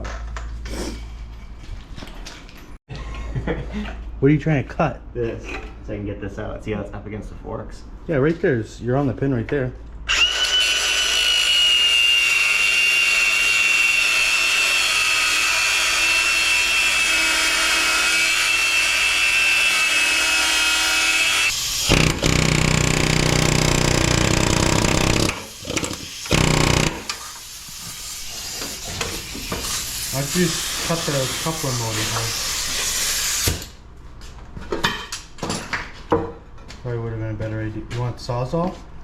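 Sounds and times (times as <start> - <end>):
power tool cutting metal: 10.1 - 28.3.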